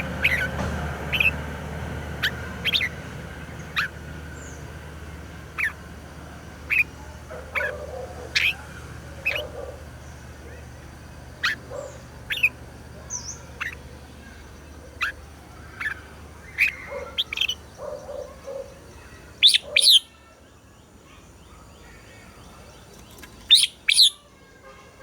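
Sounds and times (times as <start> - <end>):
bird singing whistled notes: 19.4 - 20.2, 23.4 - 24.3.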